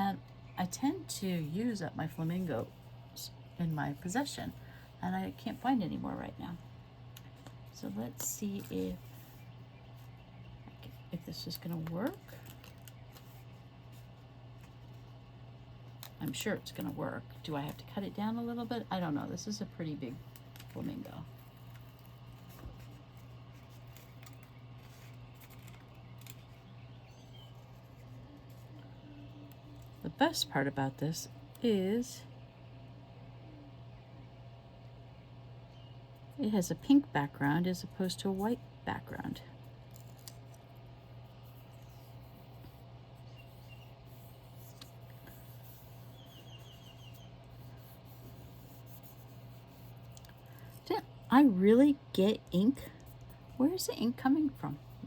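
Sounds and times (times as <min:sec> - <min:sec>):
steady low hum: 0:00.0 - 0:55.0
paper handling clicks and rustles: 0:10.8 - 0:15.2, 0:20.2 - 0:30.0, 0:39.6 - 0:40.9.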